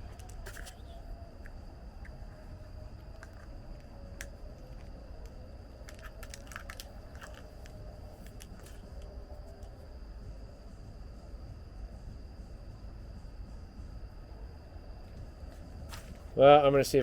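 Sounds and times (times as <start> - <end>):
low background rumble: 0.0 - 17.0
parts clicking and rattling: 3.0 - 9.7.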